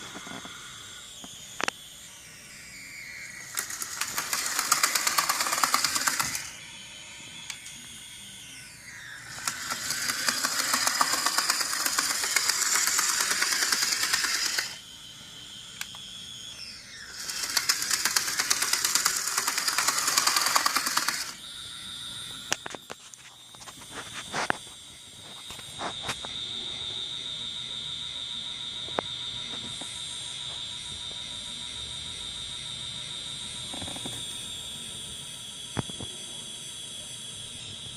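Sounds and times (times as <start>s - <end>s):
high-pitched whine: 0.0s - 37.9s
model locomotive clattering: 3.5s - 6.5s, 9.4s - 14.8s, 17.2s - 21.4s
scattered clicks: 3.5s - 6.5s, 9.4s - 14.8s, 17.2s - 21.4s.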